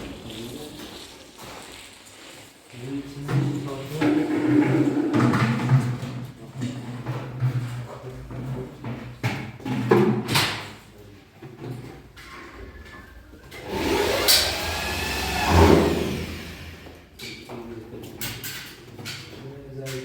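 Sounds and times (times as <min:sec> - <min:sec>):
motor whirring: 0:13.6 - 0:17.1.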